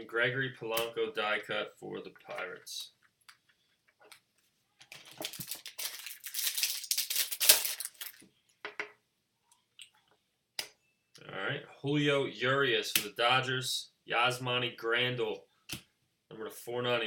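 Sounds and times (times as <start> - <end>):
foil wrapper crinkling and tearing: 4.9 - 8.2.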